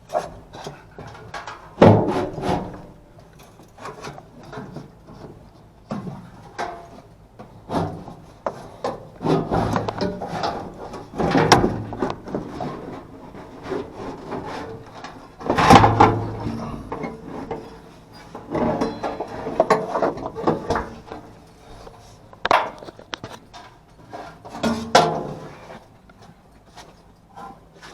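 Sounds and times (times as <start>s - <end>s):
hard objects scraping and knocking: 7.6s - 25.8s.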